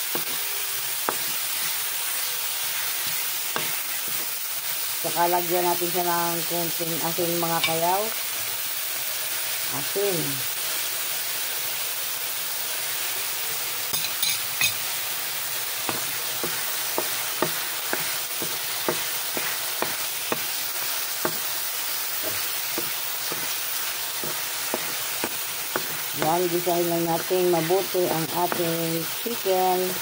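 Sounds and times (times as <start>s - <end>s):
chicken sizzling in a frying pan: 0.0s - 30.0s
wooden spatula knocking on pan: 15.9s - 20.6s, 21.2s - 21.5s, 22.2s - 23.6s, 24.2s - 26.4s, 28.4s - 28.8s.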